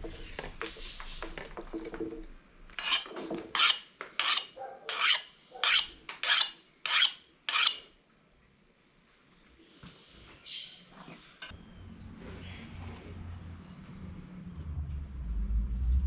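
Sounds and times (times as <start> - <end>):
hand file rasping: 2.8 - 7.9.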